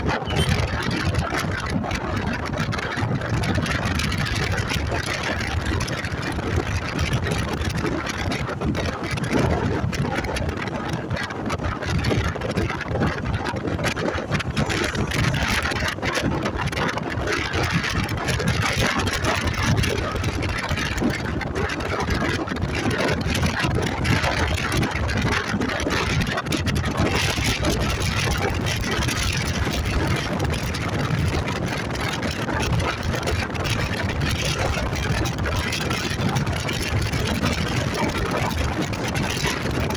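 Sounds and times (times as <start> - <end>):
motorcycle engine running: 0.0 - 8.5, 11.6 - 39.9
dense rush of noise: 12.2 - 20.5.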